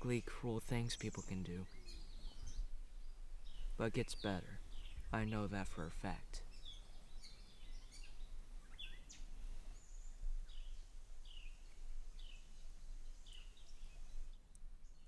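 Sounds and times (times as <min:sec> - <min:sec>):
songbird chirping: 0:00.0 - 0:15.0.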